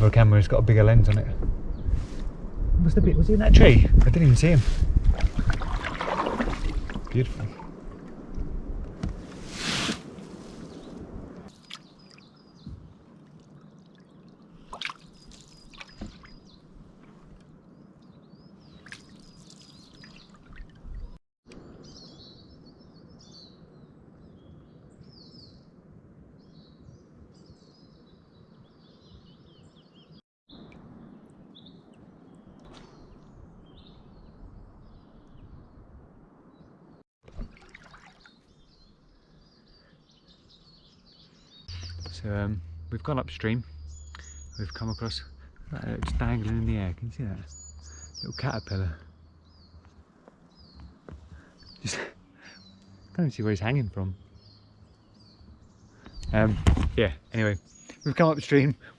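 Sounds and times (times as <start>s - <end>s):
river water trickling: 5.1s - 21.7s, 37.2s - 56.1s
small birds chirping: 10.2s - 25.7s, 26.4s - 35.8s, 37.8s - 58.9s.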